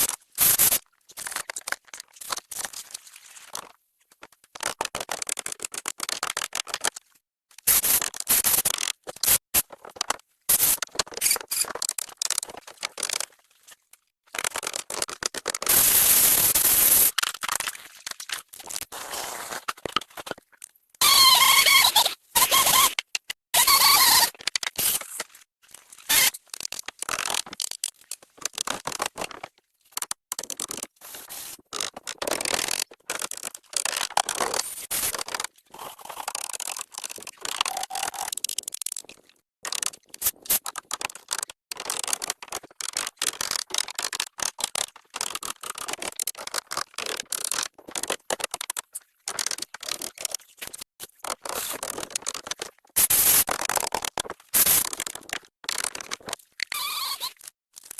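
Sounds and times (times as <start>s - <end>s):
scraping and scratching: 16.9s - 41.6s.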